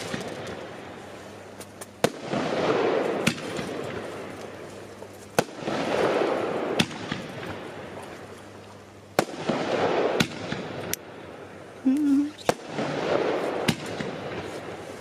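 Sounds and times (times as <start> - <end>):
firework bangs: 0.0 - 0.8, 2.0 - 4.6, 5.3 - 7.8, 9.2 - 10.9, 12.3 - 14.9.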